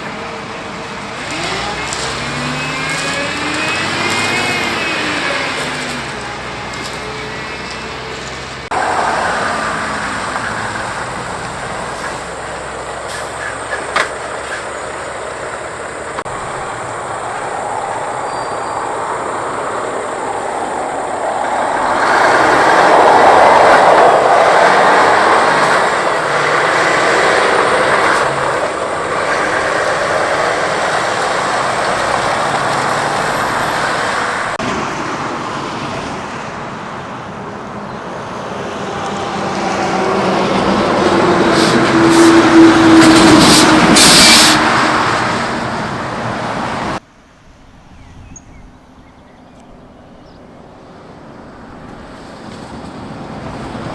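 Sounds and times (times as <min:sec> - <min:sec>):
trucks driving past: 0:00.0 - 0:47.1, 0:49.7 - 0:53.9
truck tyre noise: 0:00.0 - 0:48.1, 0:49.6 - 0:53.9.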